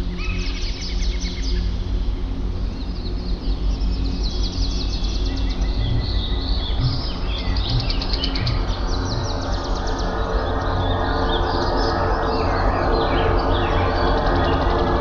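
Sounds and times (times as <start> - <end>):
birds chirping and singing: 0.0 - 2.0, 2.6 - 15.0
steady low drone: 0.0 - 15.0.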